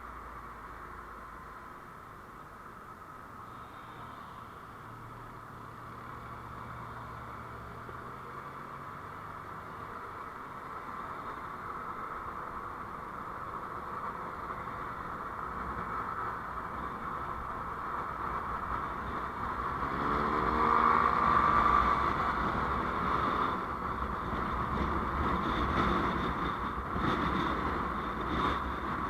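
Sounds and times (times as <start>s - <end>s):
vehicle engine and road rush: 0.0s - 29.0s
engine revving up: 19.7s - 22.0s.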